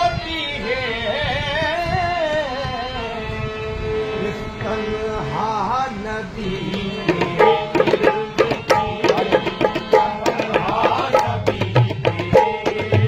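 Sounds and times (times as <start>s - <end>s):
harmonium held notes: 3.5s - 13.0s
hand drum beating quick rhythm: 7.1s - 13.0s.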